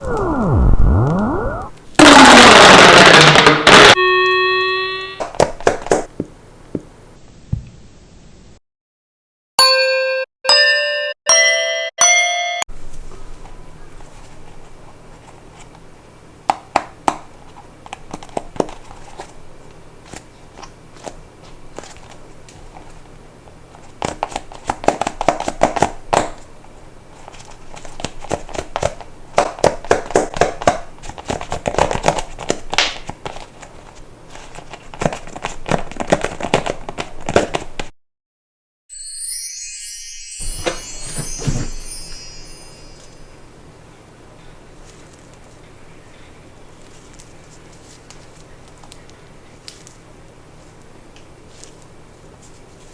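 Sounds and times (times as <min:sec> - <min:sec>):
rising chime notes: 0:00.0 - 0:01.8, 0:38.9 - 0:43.5.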